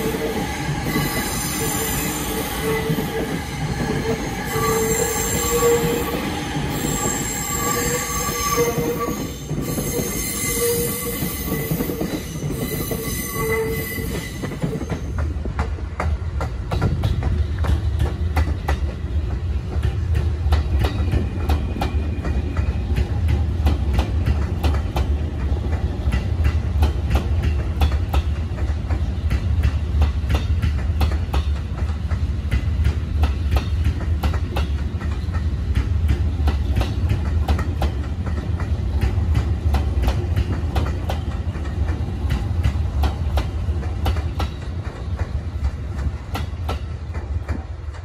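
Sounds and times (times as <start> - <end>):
train rolling past: 0.0 - 48.0
wheels clicking over rail joints: 14.1 - 48.0.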